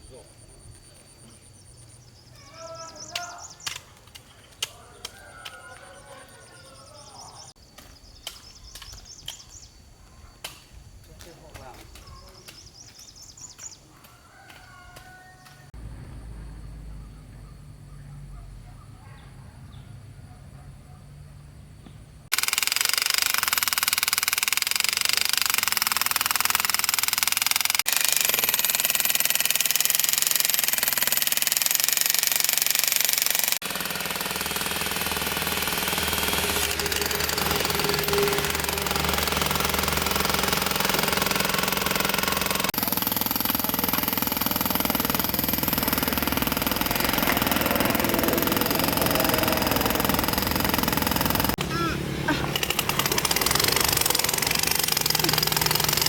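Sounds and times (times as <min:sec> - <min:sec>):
construction machinery noise: 0:22.3 - 0:56.0.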